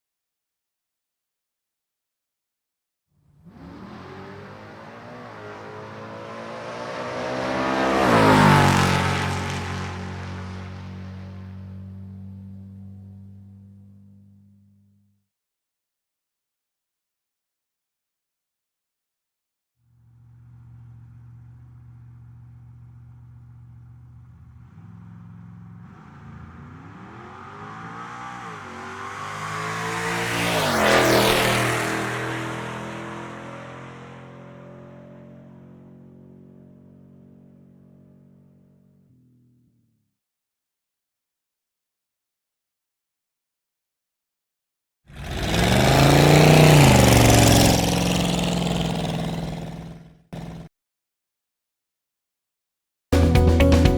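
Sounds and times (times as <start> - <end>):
car engine idling and revving: 3.2 - 15.0, 19.9 - 39.6, 45.1 - 50.7.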